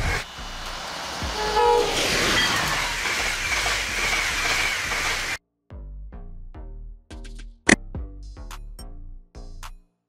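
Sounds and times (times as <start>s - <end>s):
train rushing past on rails: 0.0s - 5.4s
train horn chord: 1.2s - 2.4s.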